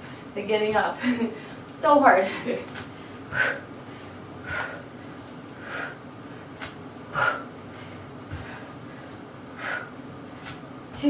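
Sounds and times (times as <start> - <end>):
woman breathing hard: 1.0 - 6.5, 7.1 - 10.0.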